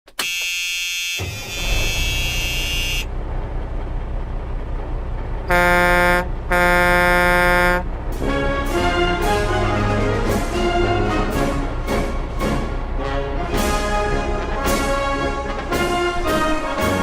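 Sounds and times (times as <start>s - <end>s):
high-pitched horn toots: 0.1s - 3.1s, 5.5s - 7.9s
truck air horn blasts: 0.2s - 3.1s, 5.5s - 11.7s
engines running: 1.2s - 17.0s.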